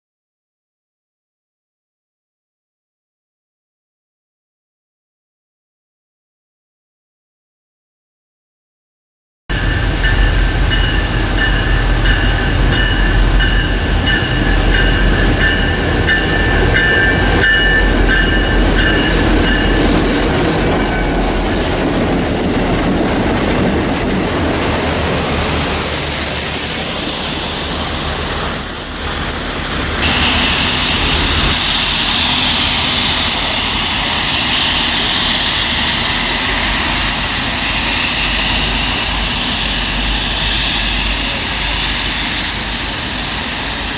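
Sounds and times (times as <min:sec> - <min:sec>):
train rumble and wheel noise: 0:09.5 - 0:43.9
high-pitched squealing: 0:24.3 - 0:43.9.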